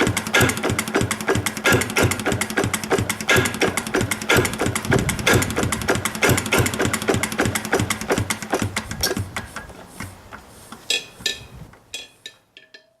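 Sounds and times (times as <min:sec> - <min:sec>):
diesel engine running down: 0:00.0 - 0:09.3.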